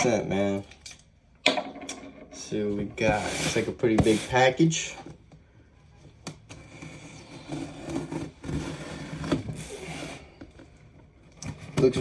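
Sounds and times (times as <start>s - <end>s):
cardboard package scraping: 6.6s - 10.4s.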